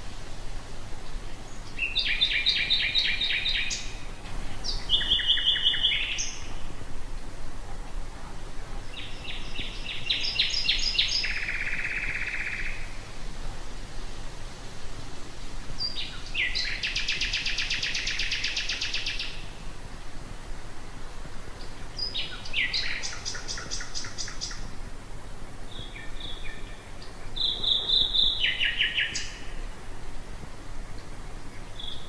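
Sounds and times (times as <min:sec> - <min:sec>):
nightingale singing: 0:01.0 - 0:06.7, 0:08.9 - 0:13.0, 0:15.8 - 0:19.6, 0:21.6 - 0:24.7, 0:25.7 - 0:29.8, 0:31.6 - 0:32.0.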